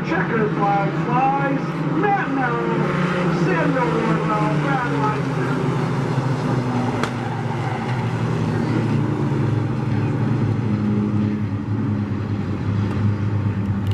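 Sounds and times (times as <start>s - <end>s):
racing truck engines droning: 0.0s - 13.9s.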